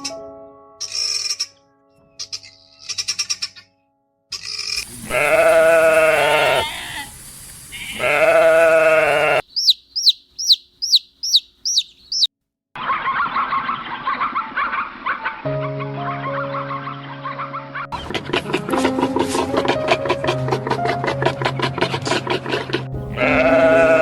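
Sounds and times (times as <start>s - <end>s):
goat bleating: 4.8s - 9.4s, 23.0s - 24.0s.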